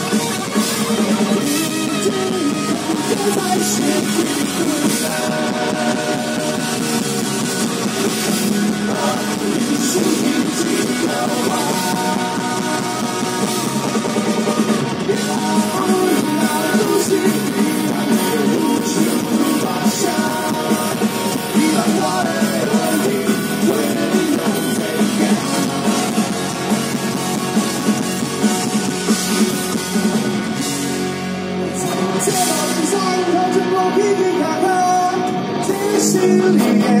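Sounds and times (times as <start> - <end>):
drum kit: 0.0 - 37.0
punk rock band playing: 0.0 - 37.0.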